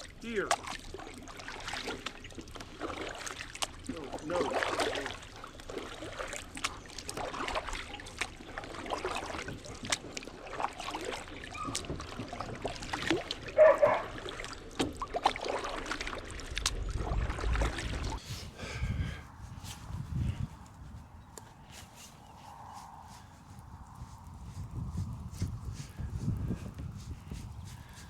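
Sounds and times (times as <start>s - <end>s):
knocks and clicks against hull: 11.6s - 13.3s.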